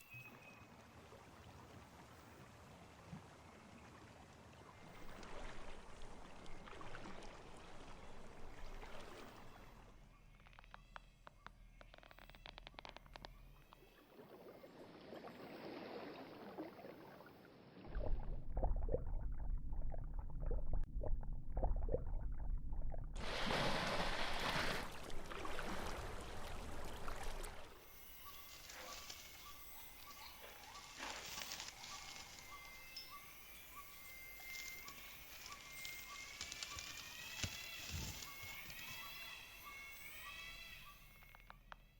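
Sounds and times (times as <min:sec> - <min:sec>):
whistled bird-like glides: 0:00.0 - 0:00.8, 0:27.6 - 0:41.7
low rumble: 0:17.9 - 0:23.3.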